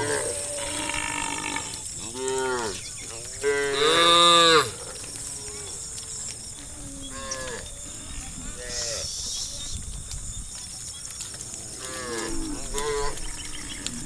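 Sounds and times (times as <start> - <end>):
cows mooing: 0.0 - 5.9.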